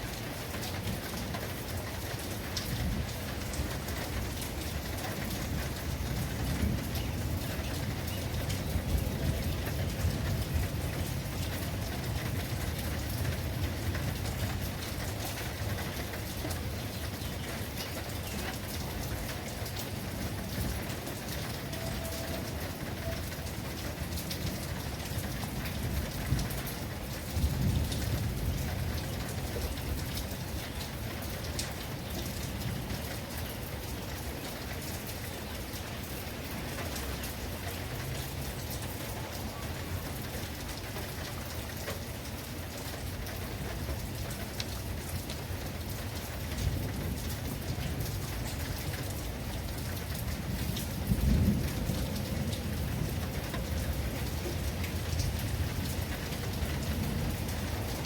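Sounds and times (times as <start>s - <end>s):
rain pouring: 0.0s - 58.0s
thunder rumbles: 2.6s - 16.7s, 18.4s - 31.7s, 46.5s - 58.0s.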